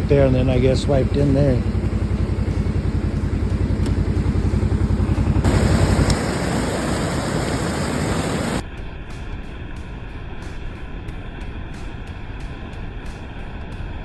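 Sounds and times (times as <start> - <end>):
small engine running: 0.0 - 8.6
steady hiss: 0.4 - 8.6.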